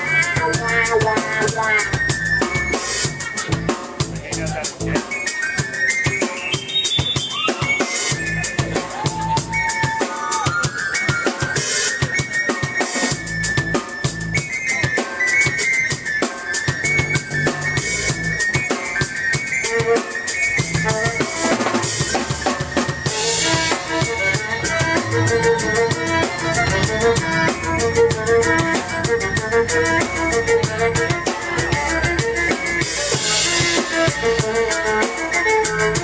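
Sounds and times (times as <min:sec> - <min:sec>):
violin melody: 0:00.0 - 0:03.8, 0:19.5 - 0:22.4, 0:23.0 - 0:36.0
deep bass: 0:00.0 - 0:05.1, 0:08.2 - 0:09.7, 0:13.2 - 0:14.4, 0:16.9 - 0:18.5, 0:20.6 - 0:36.0
drum kit beat: 0:00.0 - 0:36.0
keyboard melody: 0:00.0 - 0:36.0.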